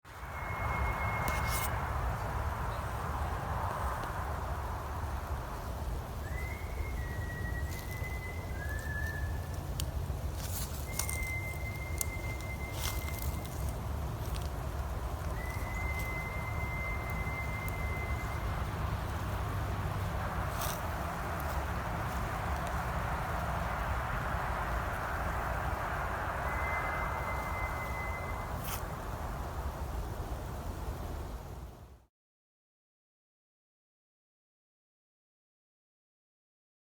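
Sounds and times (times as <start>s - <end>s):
constant low rumble: 0.1s - 32.0s
steady rushing noise: 0.1s - 32.0s
thin high whistling: 0.2s - 1.8s, 6.2s - 18.8s, 26.2s - 29.0s.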